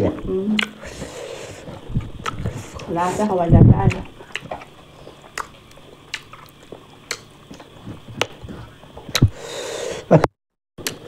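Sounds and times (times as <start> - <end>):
mouth smacks: 0.6 - 2.9, 3.9 - 9.4
person chewing: 0.6 - 2.9, 3.9 - 9.4.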